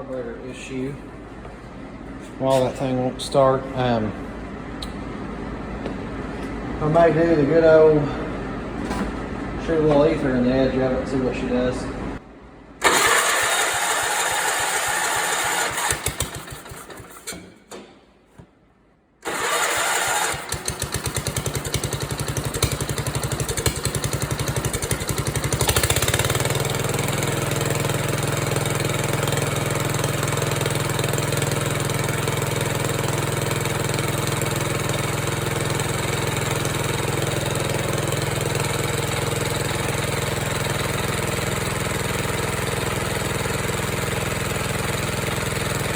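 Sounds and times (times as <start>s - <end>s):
garden tractor engine running: 12.8s - 17.2s, 19.2s - 45.9s.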